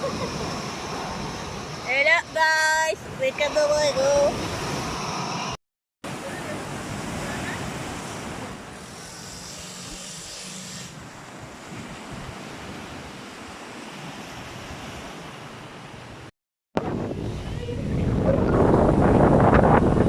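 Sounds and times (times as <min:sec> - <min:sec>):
sea waves rushing: 0:00.0 - 0:20.0
wind buffeting the microphone: 0:16.8 - 0:20.0.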